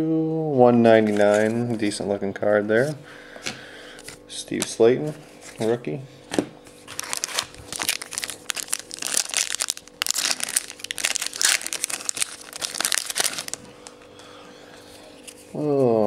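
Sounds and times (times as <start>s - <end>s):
plastic wrapper crinkling: 6.8s - 14.1s.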